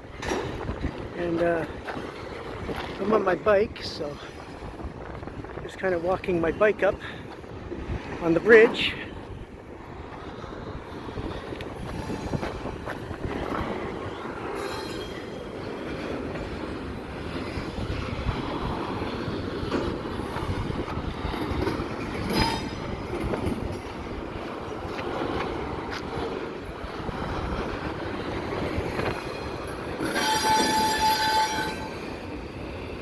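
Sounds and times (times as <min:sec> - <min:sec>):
freight train wheels rumbling: 0:00.0 - 0:33.0
high wheel squeals: 0:11.8 - 0:12.6, 0:14.1 - 0:15.5, 0:22.2 - 0:23.0, 0:30.0 - 0:32.2.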